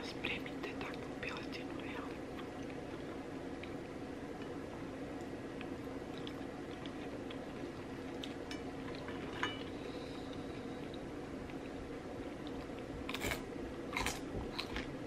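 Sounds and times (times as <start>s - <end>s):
low background hum: 0.0s - 15.0s
chewing fried chicken: 2.1s - 3.8s, 5.2s - 15.0s.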